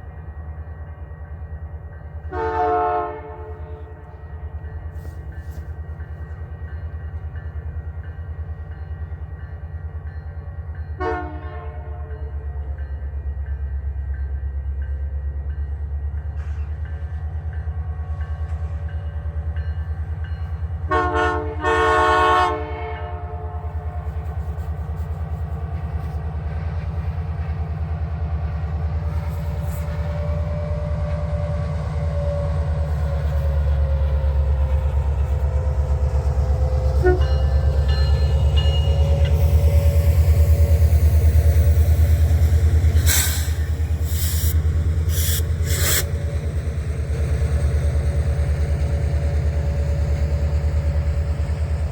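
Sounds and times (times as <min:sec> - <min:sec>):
train rumbling past: 0:00.0 - 0:51.9
locomotive horn blast: 0:02.3 - 0:04.1, 0:11.0 - 0:12.2, 0:20.9 - 0:23.8, 0:36.0 - 0:37.8.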